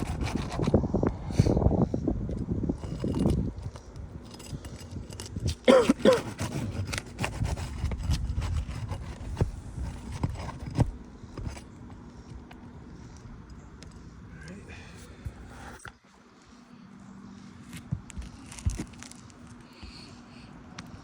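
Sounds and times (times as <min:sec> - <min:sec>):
shingles scraping and rubbing: 0:00.0 - 0:00.8, 0:02.7 - 0:12.4, 0:17.7 - 0:19.6.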